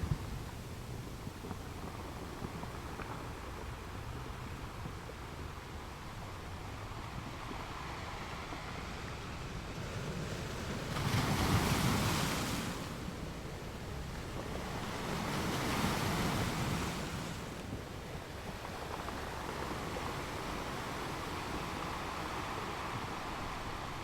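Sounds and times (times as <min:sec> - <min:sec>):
wind buffeting microphone: 0:00.0 - 0:24.0
waves breaking on beach: 0:07.2 - 0:24.0.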